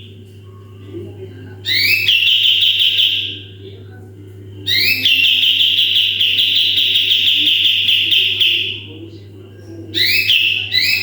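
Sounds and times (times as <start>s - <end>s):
low steady hum: 0.0s - 11.0s
songbird trilling song: 1.6s - 3.5s, 4.7s - 8.9s, 10.0s - 11.0s.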